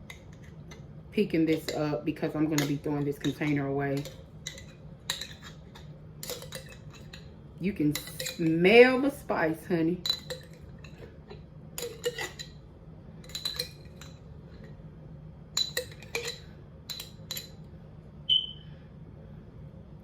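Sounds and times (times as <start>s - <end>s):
kitchenware clinking and tapping: 1.5s - 7.3s, 7.9s - 8.6s, 10.0s - 12.6s, 13.2s - 14.7s, 15.6s - 17.6s.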